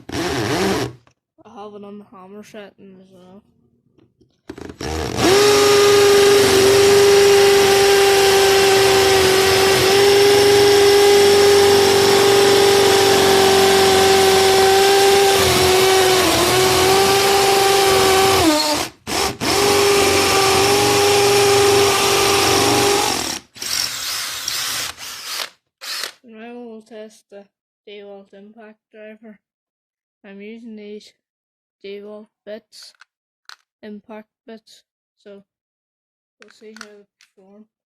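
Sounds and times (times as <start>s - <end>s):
hammer drill drilling into brick: 0.0s - 1.0s, 4.5s - 26.2s.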